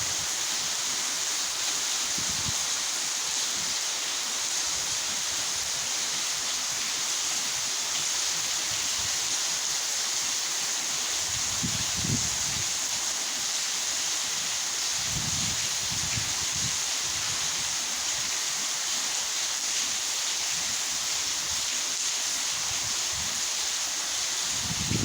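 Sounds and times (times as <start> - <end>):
heavy rain pouring: 0.0 - 25.0
wind buffeting microphone: 11.3 - 12.7, 15.0 - 17.4, 24.5 - 25.0.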